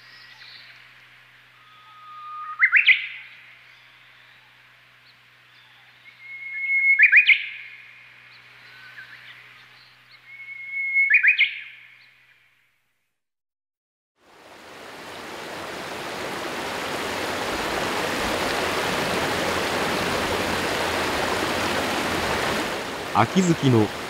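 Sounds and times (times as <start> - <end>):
songbird whistling call: 1.6 - 4.0, 5.6 - 7.8, 8.6 - 12.1
faint steady hiss: 14.3 - 24.0.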